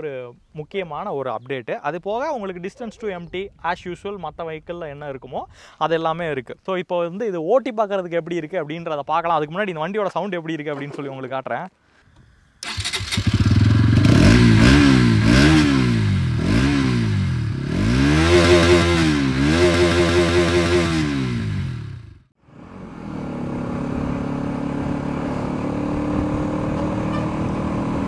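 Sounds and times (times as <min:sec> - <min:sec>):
motorcycle engine revving: 0:12.6 - 0:28.0.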